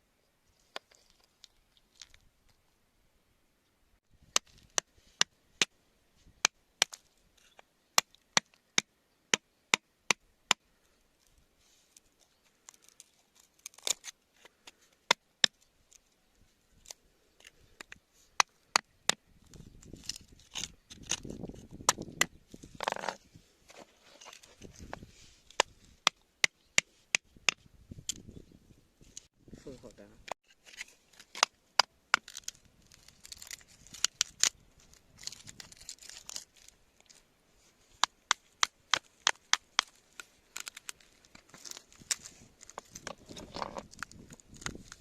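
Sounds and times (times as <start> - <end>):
scraping and rustling: 22.5 - 25.5.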